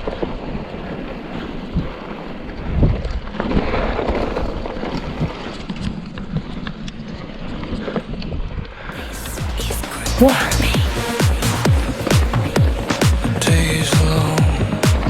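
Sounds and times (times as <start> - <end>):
wind buffeting microphone: 0.4 - 6.6.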